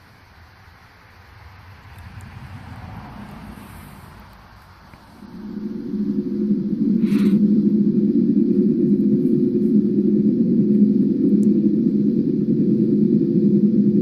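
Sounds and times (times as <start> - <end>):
low droning hum: 0.0 - 14.0.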